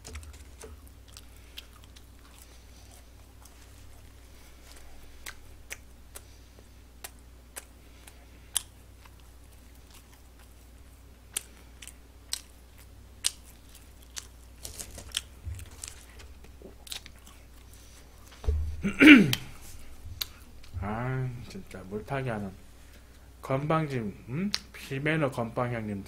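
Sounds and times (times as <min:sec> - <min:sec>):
wet chewing clicks and smacks: 0:00.0 - 0:17.7, 0:20.2 - 0:20.7
low hum: 0:15.4 - 0:24.4.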